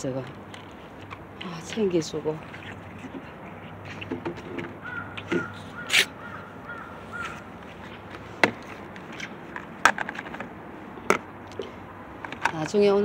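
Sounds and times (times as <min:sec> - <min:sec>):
bird calling high note: 0:04.8 - 0:07.4.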